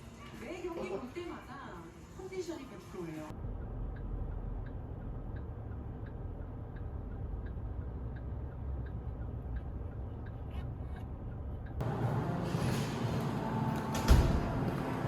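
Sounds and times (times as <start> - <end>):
soft regular ticking: 3.3 - 11.8.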